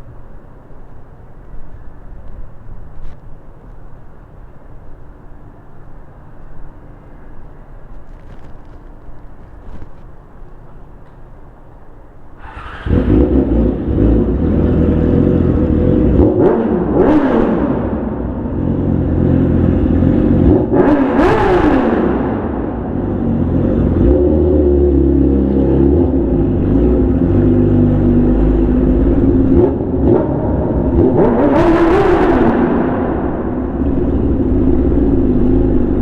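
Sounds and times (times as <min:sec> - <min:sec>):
motorcycle engine revving: 0:12.4 - 0:36.0.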